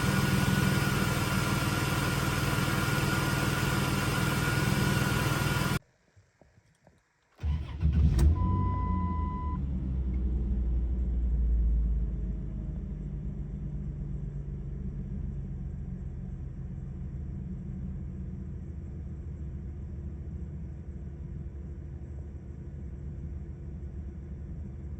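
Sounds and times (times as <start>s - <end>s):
car engine starting and idling: 0.0s - 5.8s, 7.4s - 18.5s.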